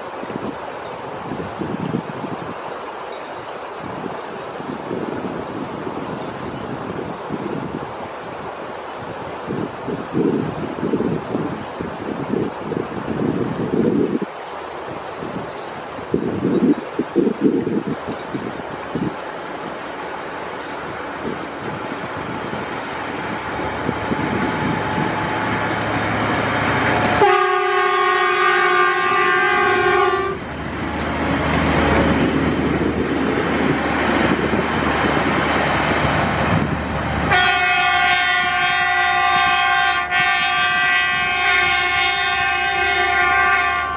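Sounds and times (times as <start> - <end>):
train rumbling on rails: 0.0 - 43.9
train horn blasts: 27.0 - 30.5, 37.2 - 43.9.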